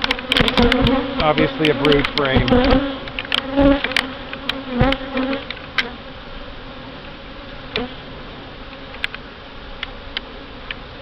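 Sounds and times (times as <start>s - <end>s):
honey bees buzzing: 0.0s - 11.0s.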